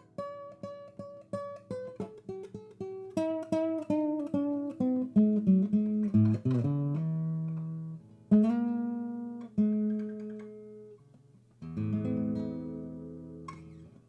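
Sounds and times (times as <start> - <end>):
acoustic guitar plucked notes: 0.0 - 14.0.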